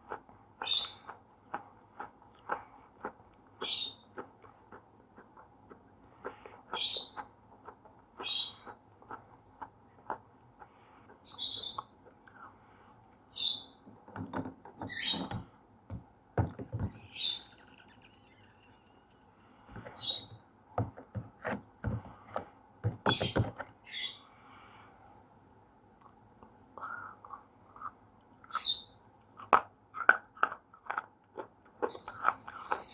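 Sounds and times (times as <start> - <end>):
pencils being chewed with crunches: 0.0 - 12.6, 29.3 - 32.9.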